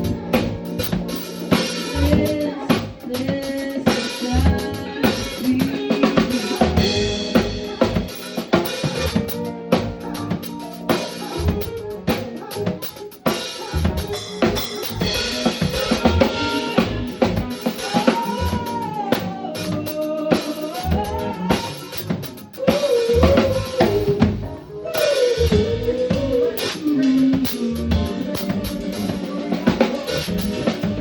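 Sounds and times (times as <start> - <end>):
drum kit: 0.0 - 31.0
live band playing: 0.0 - 31.0.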